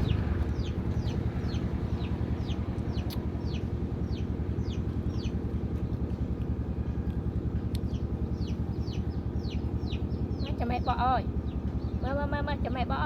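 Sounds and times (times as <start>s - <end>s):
bird chirping: 0.0s - 5.9s, 7.9s - 11.0s
steady low rumble: 0.0s - 13.0s.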